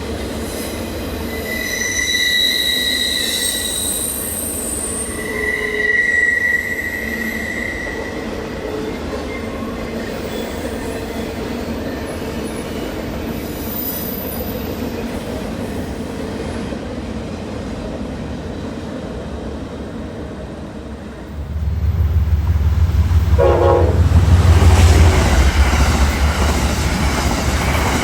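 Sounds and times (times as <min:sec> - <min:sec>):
train wheels squealing: 0:00.3 - 0:16.4
train cars rumbling on rails: 0:02.6 - 0:28.0.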